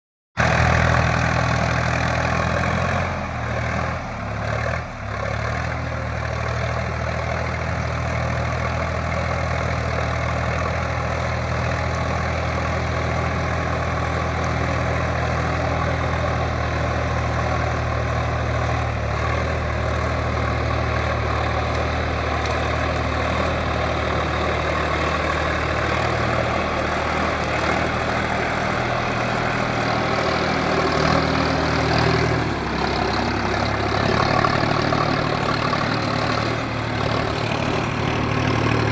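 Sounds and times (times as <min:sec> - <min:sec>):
tractor diesel engine droning: 0:00.4 - 0:38.9
rotavator blades churning soil: 0:09.3 - 0:38.9.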